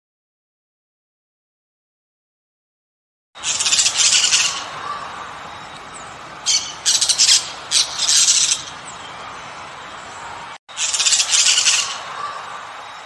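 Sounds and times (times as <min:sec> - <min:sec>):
toucan harsh rattling squawks: 0:06.4 - 0:08.8.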